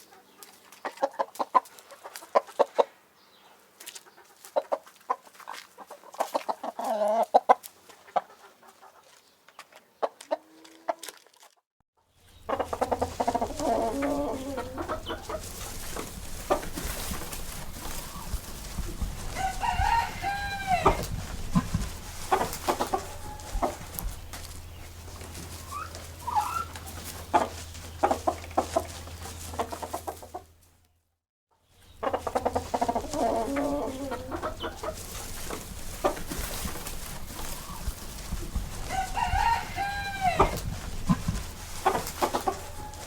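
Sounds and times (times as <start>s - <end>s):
chickens clucking: 0.0s - 11.2s, 12.2s - 30.7s, 31.8s - 43.0s
rooster crowing: 19.3s - 21.1s, 23.0s - 24.0s, 38.9s - 40.6s.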